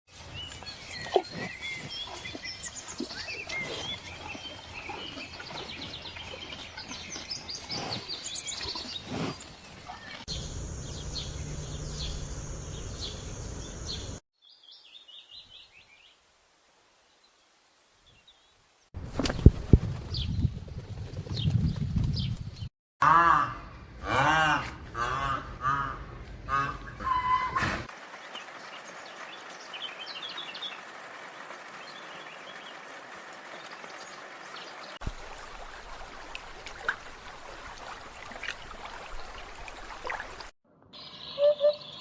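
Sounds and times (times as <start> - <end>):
birds chirping and calling: 28.2 - 35.0, 41.0 - 42.0.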